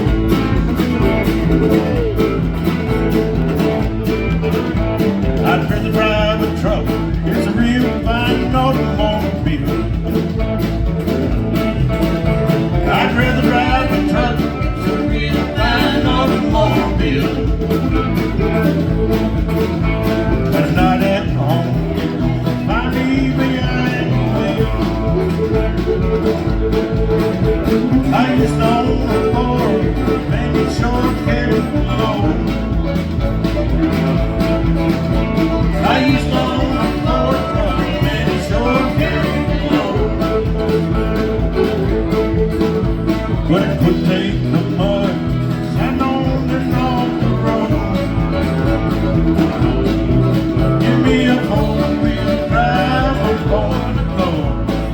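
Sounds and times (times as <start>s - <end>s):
guitar: 0.0s - 54.9s
live country band playing: 0.0s - 54.9s
steady bass beat: 0.0s - 54.9s.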